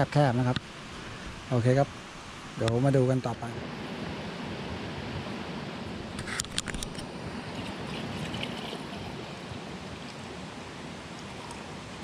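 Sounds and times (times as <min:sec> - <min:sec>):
stream flowing: 0:00.0 - 0:12.0.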